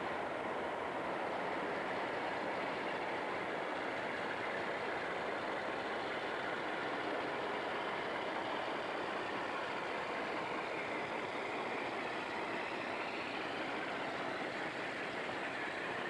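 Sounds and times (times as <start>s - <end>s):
diesel locomotive idling: 0.0s - 16.0s.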